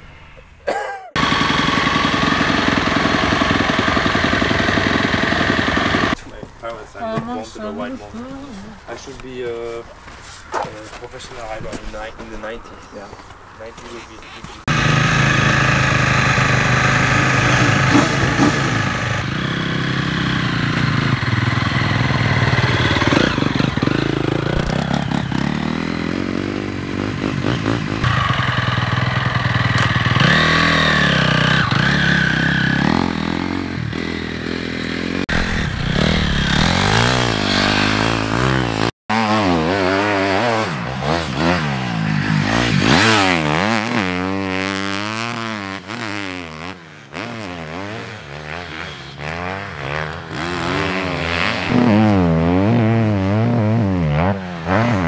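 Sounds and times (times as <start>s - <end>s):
motocross bike engine revving: 1.2s - 6.2s, 14.7s - 55.0s.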